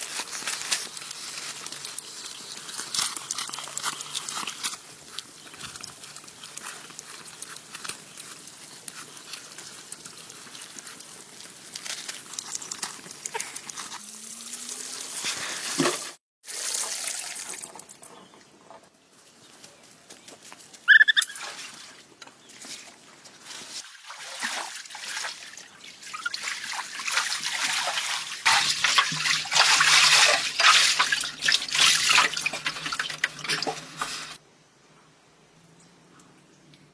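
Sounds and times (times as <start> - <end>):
small clicks and splashes: 0.0 - 14.6, 16.7 - 18.8, 20.2 - 34.2
water trickling and sloshing: 21.3 - 34.4.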